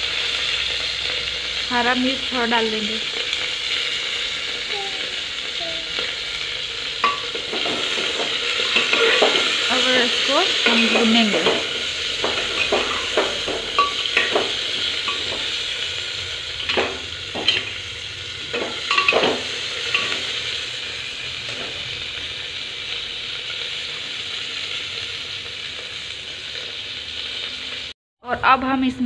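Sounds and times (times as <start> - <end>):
vegetables sizzling in hot oil: 0.0 - 29.0
steel ladle scraping a pot: 7.0 - 15.6.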